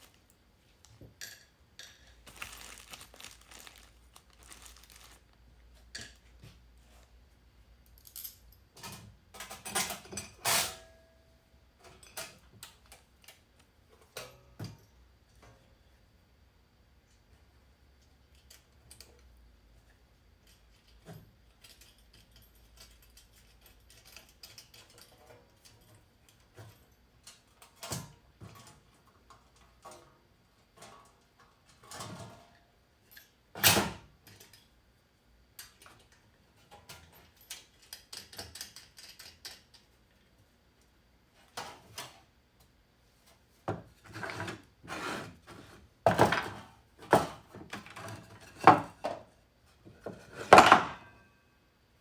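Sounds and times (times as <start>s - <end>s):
metal tools clinking and rattling: 20.5s - 27.5s.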